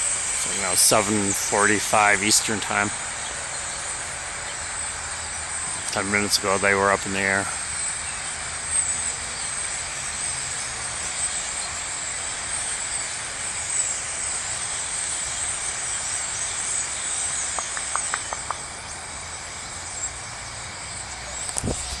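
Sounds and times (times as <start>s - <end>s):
flock of birds chattering: 0.0s - 22.0s
single bird calls: 17.4s - 18.7s.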